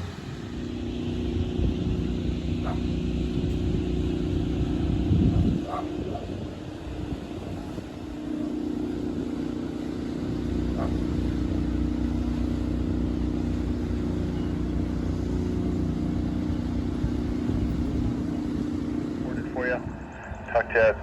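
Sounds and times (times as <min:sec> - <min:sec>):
engine drone: 0:00.0 - 0:21.0.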